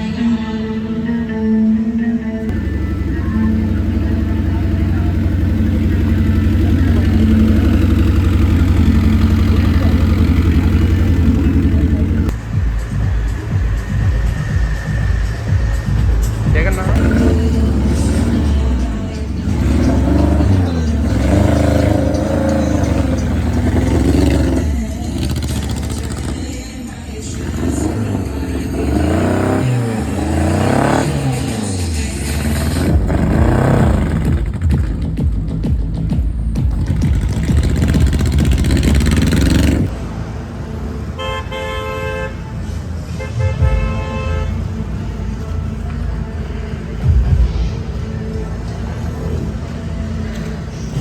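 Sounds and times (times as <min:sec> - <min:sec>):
car horn honking: 0:00.0 - 0:34.3, 0:41.0 - 0:45.6
low rumble of engines: 0:00.0 - 0:51.0
car engine revving: 0:02.2 - 0:41.2, 0:42.4 - 0:51.0.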